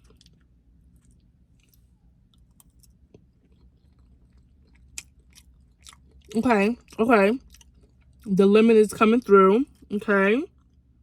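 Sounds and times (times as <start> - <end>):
close-up chewing: 0.0 - 8.3.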